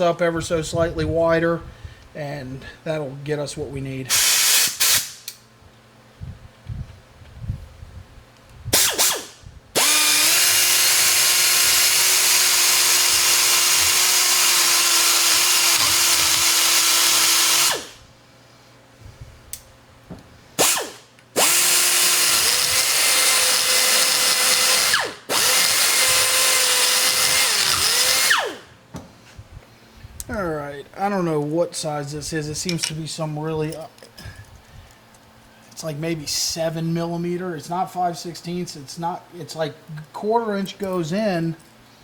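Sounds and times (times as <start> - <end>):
rotary grinder whining: 8.8 - 18.0, 20.6 - 28.7.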